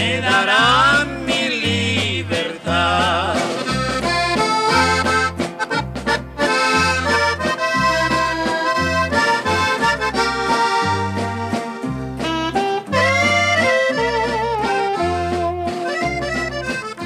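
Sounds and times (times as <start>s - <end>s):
button accordion melody: 0.0s - 17.0s
low bass line: 0.0s - 17.0s.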